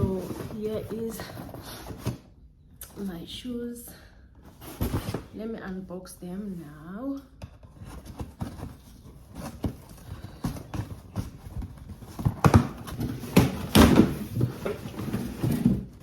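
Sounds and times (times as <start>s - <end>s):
packaging knocks and rustles: 7.7s - 16.0s.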